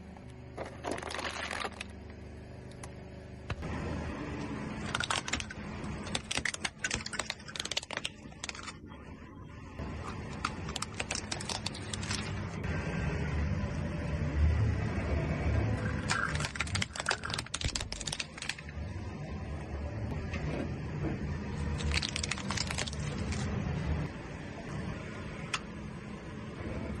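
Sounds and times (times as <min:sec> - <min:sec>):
rolling car rumble: 0:00.0 - 0:27.0
plastic toys cracking under tyre: 0:00.8 - 0:01.9, 0:04.9 - 0:08.8, 0:10.3 - 0:12.4, 0:15.8 - 0:18.7, 0:21.7 - 0:23.5.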